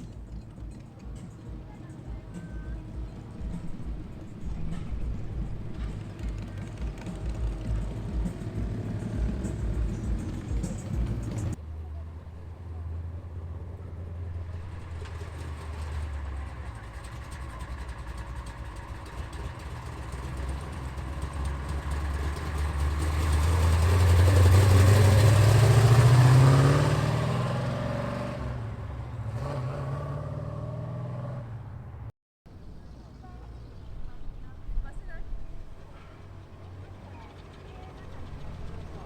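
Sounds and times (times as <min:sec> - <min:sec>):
car accelerating past: 0:00.0 - 0:11.6, 0:12.2 - 0:32.1
car engine and exhaust rumbling: 0:00.0 - 0:39.0.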